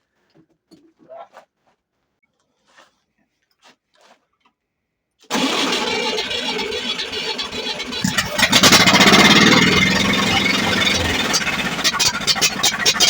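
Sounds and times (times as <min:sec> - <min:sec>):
engine starting and running: 0:05.3 - 0:13.0.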